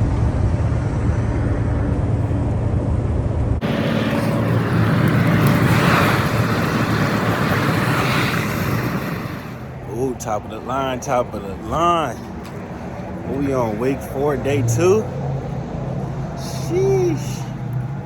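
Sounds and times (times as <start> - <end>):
road noise: 0.0 - 18.0
vehicle engine running: 3.4 - 9.9, 12.2 - 18.0
hissy vehicle rumble: 3.4 - 18.0.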